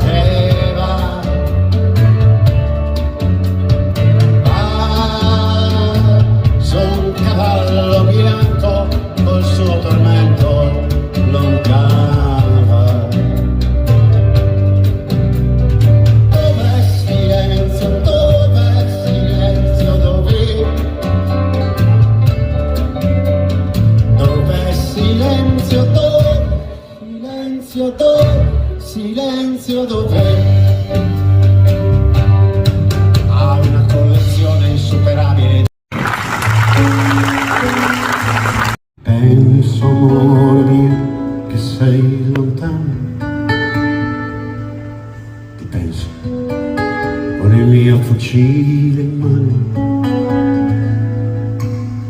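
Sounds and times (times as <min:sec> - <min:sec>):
person singing: 0:00.0 - 0:02.2, 0:04.3 - 0:13.6, 0:16.3 - 0:21.5, 0:24.1 - 0:31.1, 0:39.0 - 0:43.2
live band playing: 0:00.0 - 0:52.0.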